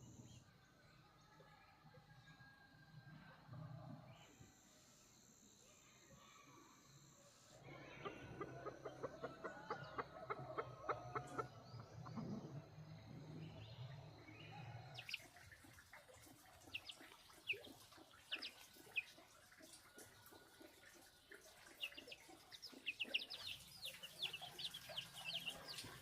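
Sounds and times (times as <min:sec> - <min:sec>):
chickens clucking: 0:07.7 - 0:26.0.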